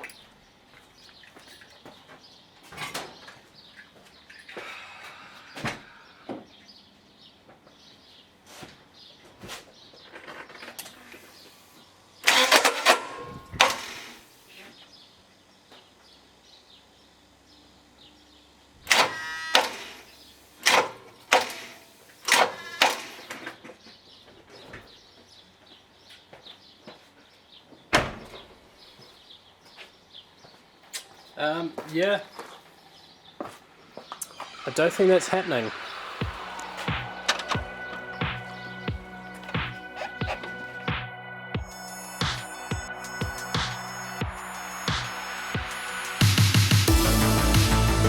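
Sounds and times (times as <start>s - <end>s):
car starter motor cranking: 12.2s - 14.3s, 35.7s - 40.8s.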